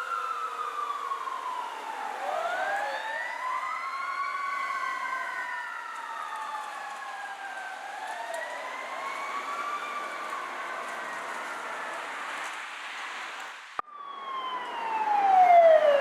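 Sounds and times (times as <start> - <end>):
emergency sirens wailing: 0.0 - 16.0.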